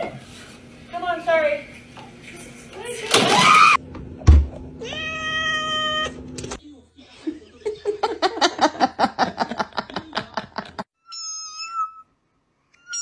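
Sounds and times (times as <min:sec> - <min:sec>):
cat meowing: 0:04.8 - 0:06.2.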